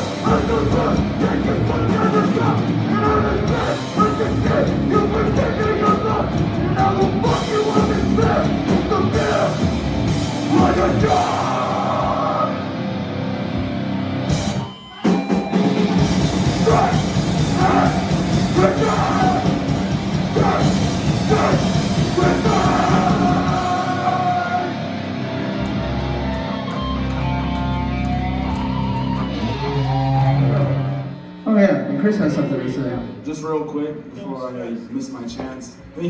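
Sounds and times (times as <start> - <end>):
bass guitar: 0.0 - 31.4
drums: 0.0 - 31.4
distorted guitar: 0.0 - 34.2
person shouting vocals: 16.6 - 19.6, 20.3 - 24.8.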